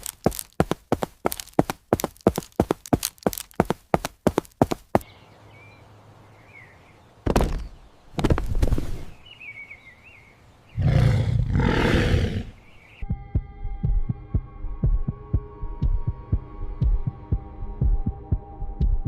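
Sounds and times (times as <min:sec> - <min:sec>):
rough roar burst: 0:10.8 - 0:12.5
pulsing low heartbeat thumping: 0:13.1 - 0:19.0.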